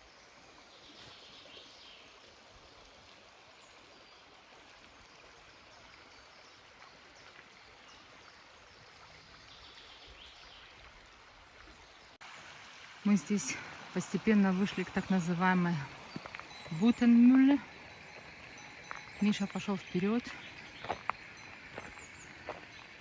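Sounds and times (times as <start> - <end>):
forest stream rushing: 0.0 - 23.0
faint bird chirps: 13.5 - 23.0.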